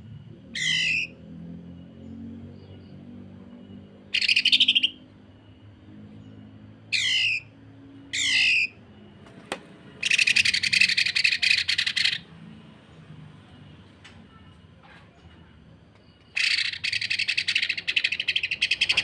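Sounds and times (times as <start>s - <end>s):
bird harsh down-slurred calls: 0.6s - 1.2s, 4.1s - 5.0s, 6.9s - 8.8s, 10.0s - 12.3s, 16.3s - 19.0s
bird rattling call: 16.4s - 19.0s.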